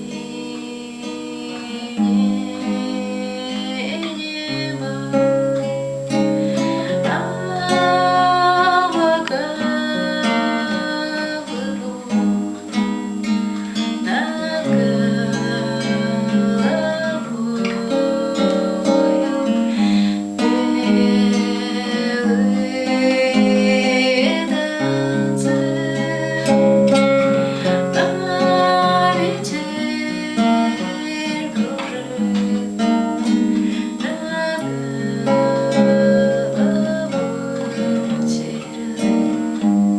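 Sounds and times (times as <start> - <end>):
acoustic guitar: 0.0 - 39.9
person singing: 0.0 - 39.9.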